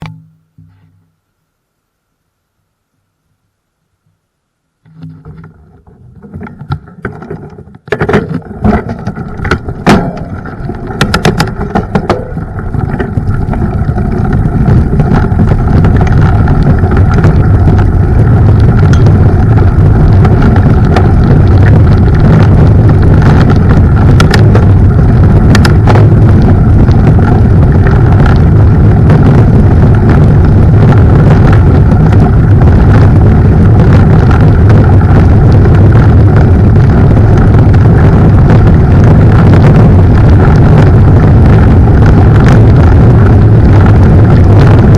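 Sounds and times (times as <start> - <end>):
tyre and air noise rumble: 0.0 - 1.3, 3.9 - 44.9
bike knocks and rattles: 5.0 - 30.2.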